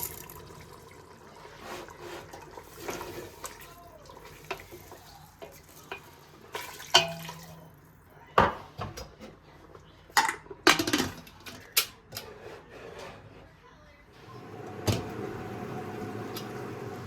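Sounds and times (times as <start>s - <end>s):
dishes and cutlery clattering: 4.4s - 7.6s, 10.1s - 13.2s.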